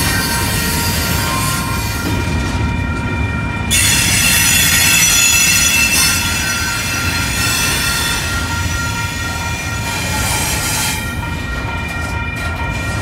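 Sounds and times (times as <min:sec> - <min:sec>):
train wheels rumbling on rail: 0:00.0 - 0:13.0
high-pitched wheel squeal: 0:03.7 - 0:08.4.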